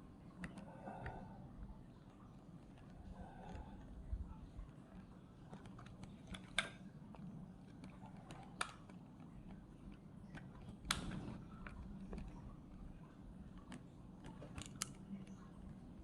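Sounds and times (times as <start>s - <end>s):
small plastic parts clicking: 4.9s - 16.0s.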